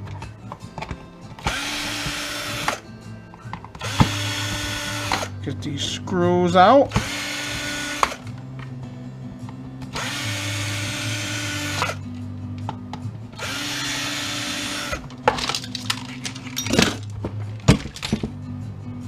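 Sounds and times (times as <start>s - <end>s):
parts clicking and knocking: 0.0s - 5.3s, 12.6s - 18.4s
power drill running: 1.4s - 2.8s, 3.8s - 5.3s, 6.9s - 8.2s, 9.9s - 12.0s, 13.4s - 15.0s.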